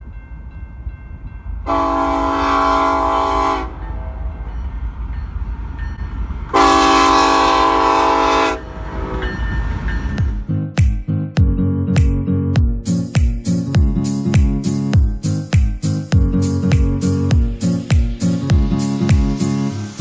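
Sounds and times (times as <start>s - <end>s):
locomotive air horn blasts: 1.6s - 4.1s, 6.5s - 10.5s.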